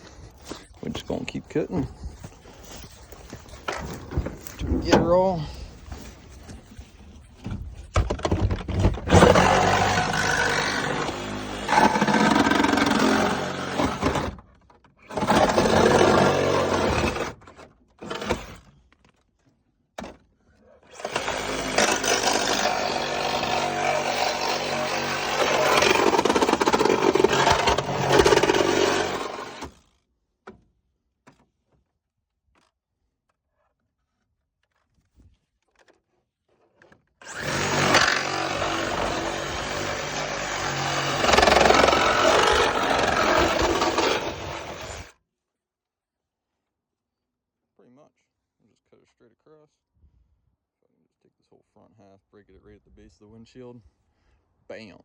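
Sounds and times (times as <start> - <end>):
reciprocating saw cutting metal: 9.0 - 14.3, 15.1 - 17.4, 20.9 - 29.8, 37.2 - 45.1.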